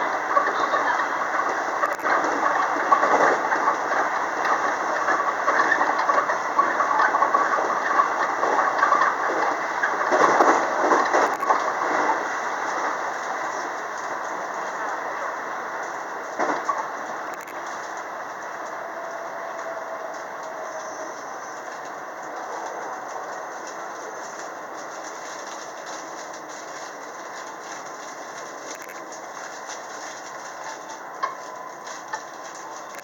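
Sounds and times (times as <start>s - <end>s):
train wheels on rail: 0.0s - 33.0s.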